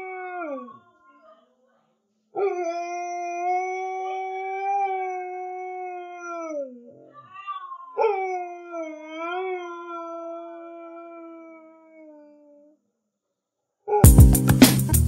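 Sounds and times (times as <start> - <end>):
dog howling: 0.0 - 1.4, 2.4 - 12.6.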